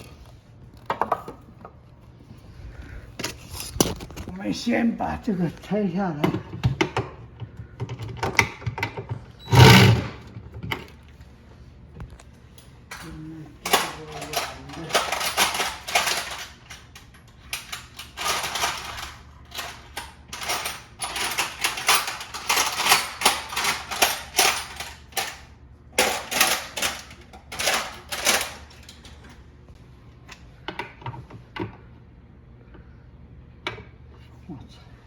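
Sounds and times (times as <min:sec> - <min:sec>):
clatter of hard plastic parts: 0:06.2 - 0:11.0, 0:12.9 - 0:29.4.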